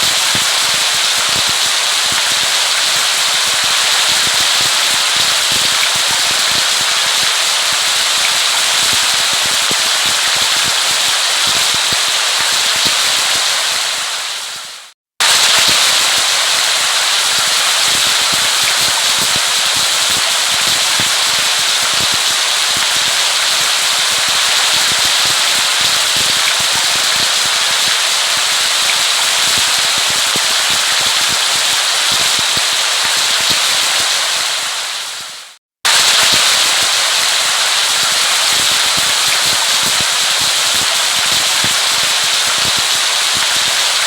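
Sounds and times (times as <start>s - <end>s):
rain patter: 0.0s - 44.0s.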